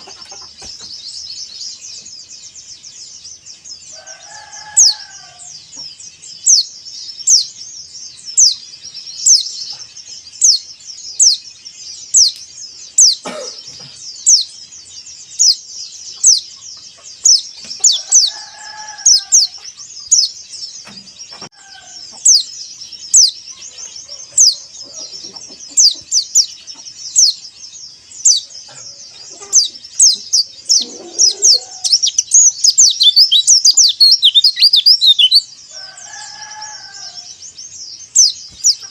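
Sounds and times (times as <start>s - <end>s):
bird chirping: 0.0s - 38.9s
distant rooster crowing: 3.9s - 5.8s, 17.8s - 19.6s, 21.4s - 22.4s, 30.7s - 37.4s.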